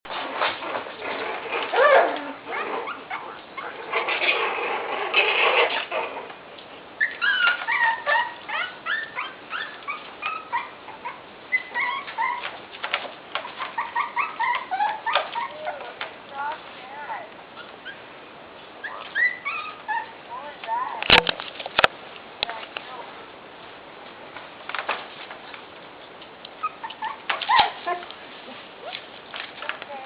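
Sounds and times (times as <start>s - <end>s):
puppies squeaking and whimpering: 0.1s - 16.3s, 17.4s - 20.6s, 24.9s - 29.5s.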